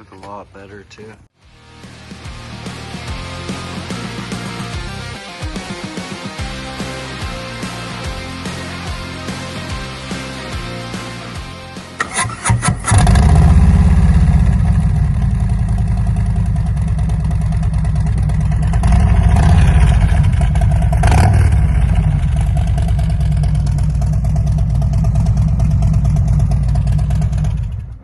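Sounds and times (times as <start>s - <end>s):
motorcycle engine cranking and running: 12.0s - 28.0s.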